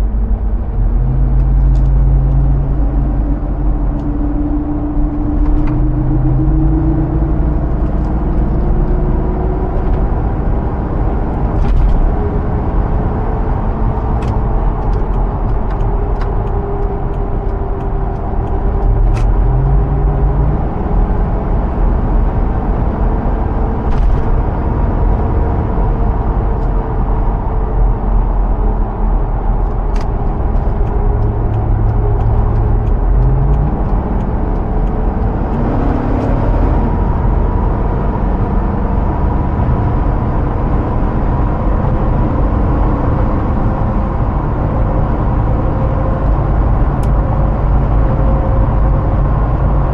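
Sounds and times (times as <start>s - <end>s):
car engine running: 0.0s - 49.9s
road and tyre rumble: 0.0s - 49.9s
sharp ticks: 30.0s - 36.3s.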